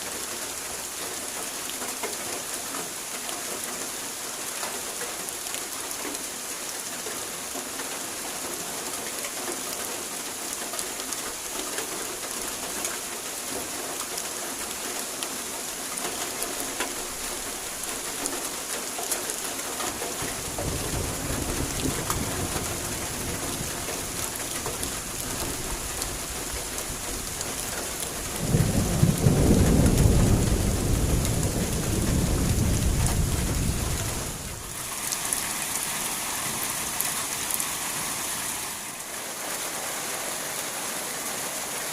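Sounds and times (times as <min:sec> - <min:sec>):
heavy rain falling: 0:00.0 - 0:41.9
rolling thunder: 0:28.3 - 0:34.7.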